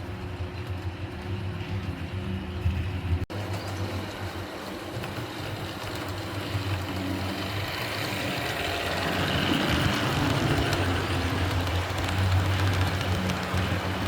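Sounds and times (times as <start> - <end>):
model train running on track: 0.0 - 14.0.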